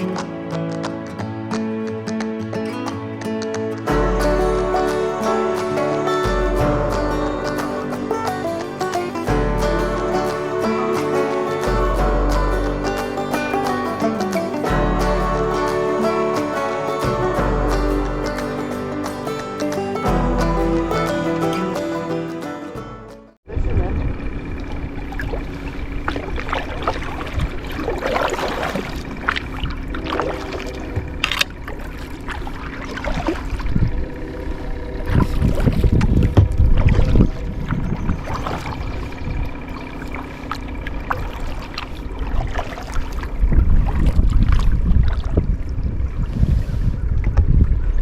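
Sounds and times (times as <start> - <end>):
wind rumble on microphone: 23.5 - 48.0
paddle splashing in water: 24.6 - 47.4.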